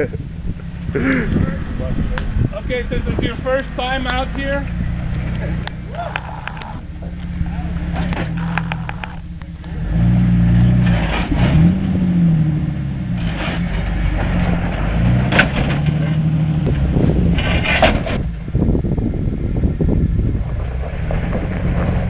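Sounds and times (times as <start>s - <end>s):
truck engine revving under load: 0.0s - 22.0s.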